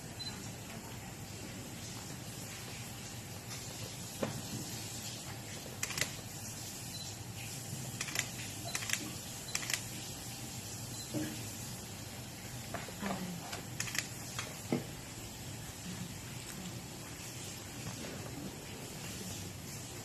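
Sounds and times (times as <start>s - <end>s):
room hiss: 0.0s - 20.0s
camera shutter clicking: 5.8s - 6.2s, 8.0s - 9.9s, 13.8s - 14.1s.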